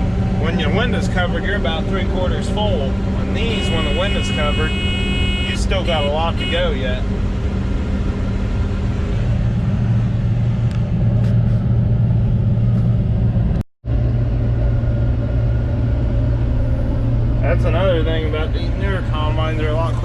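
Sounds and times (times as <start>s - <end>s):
combine engine drone from cab: 0.0s - 20.0s.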